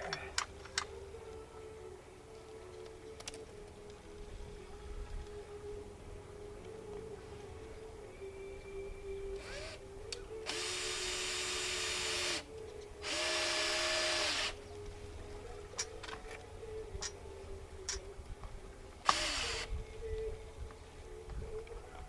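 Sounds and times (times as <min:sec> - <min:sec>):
power drill driving a screw: 0:09.4 - 0:09.8, 0:10.5 - 0:14.6, 0:19.1 - 0:19.7.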